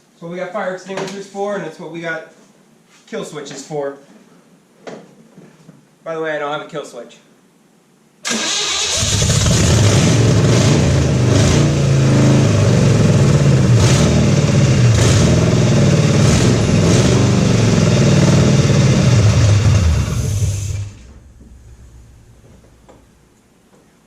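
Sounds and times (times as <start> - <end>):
car engine revving: 9.0 - 22.9.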